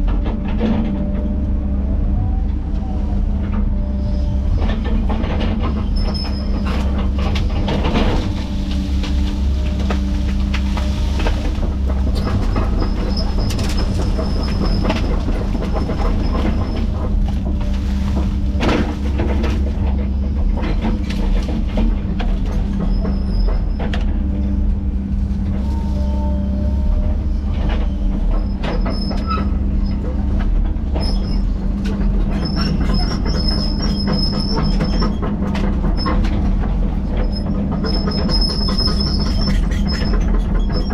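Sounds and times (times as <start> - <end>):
diesel engine drone: 0.0 - 40.9
knocks and clanks: 3.5 - 25.1.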